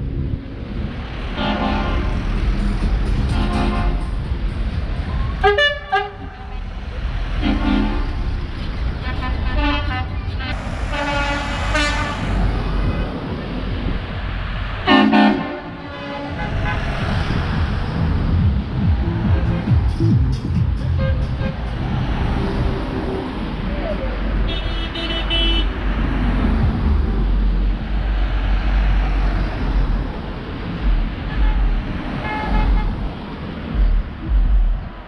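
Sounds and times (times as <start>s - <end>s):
engine and traffic rumble: 0.0s - 35.0s
vehicle horns tooting: 1.4s - 2.2s, 3.3s - 4.2s, 5.4s - 8.4s, 9.0s - 12.4s, 14.9s - 16.9s, 20.8s - 21.8s, 24.4s - 25.7s, 31.3s - 32.9s.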